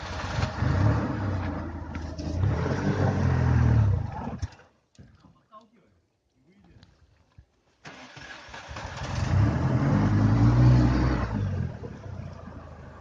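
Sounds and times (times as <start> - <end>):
car engine revving hard: 0.1 - 4.0, 8.2 - 11.9.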